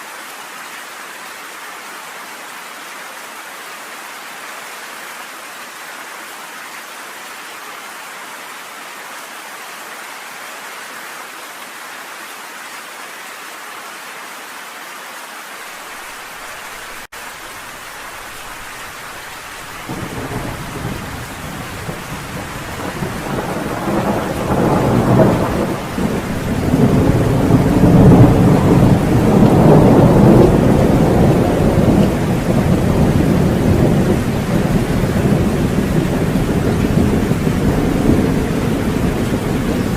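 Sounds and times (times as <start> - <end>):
heavy rain: 0.0 - 39.9
rolling thunder: 19.8 - 39.9.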